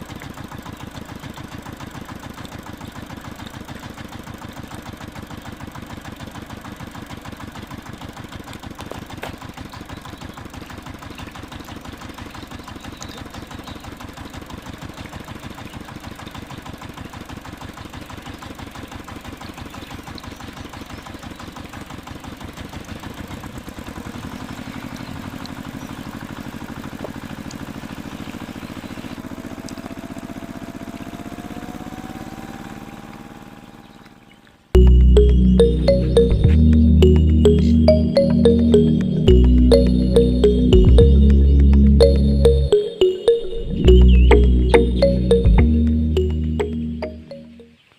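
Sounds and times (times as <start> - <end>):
small engine puttering: 0.0 - 34.7.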